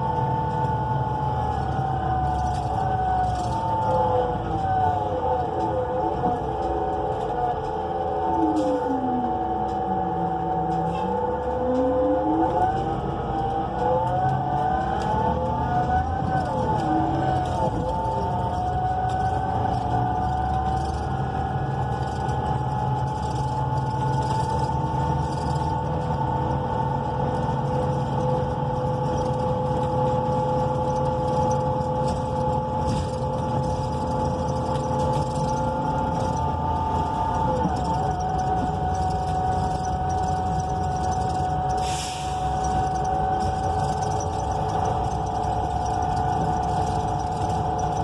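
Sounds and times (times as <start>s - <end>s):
bus engine rumble: 0.0s - 48.0s
transmission whine: 0.0s - 48.0s
brief air hiss: 41.8s - 42.5s.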